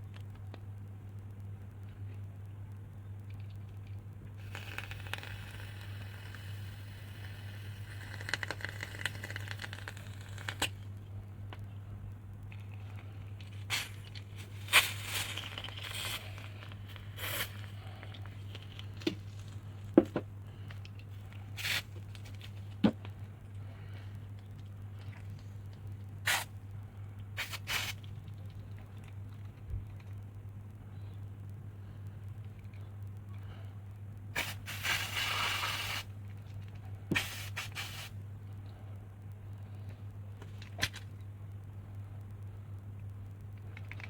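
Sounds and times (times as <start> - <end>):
low electrical hum: 0.0 - 44.0
gas lighter hissing: 4.4 - 10.7, 17.2 - 17.6, 34.4 - 36.1, 37.1 - 38.1.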